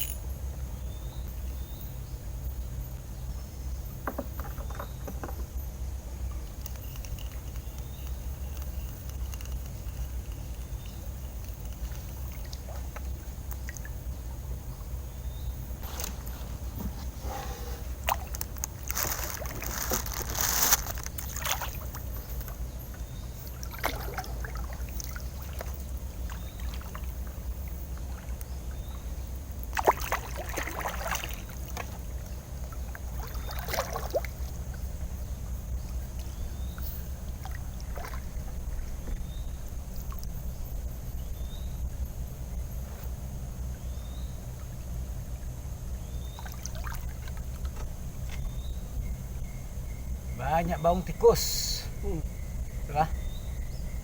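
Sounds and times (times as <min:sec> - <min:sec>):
water lapping around boat: 0:00.6 - 0:54.0
splashing and handling noise: 0:06.4 - 0:14.0, 0:15.8 - 0:22.7, 0:23.4 - 0:28.6, 0:29.5 - 0:34.9, 0:36.1 - 0:39.3.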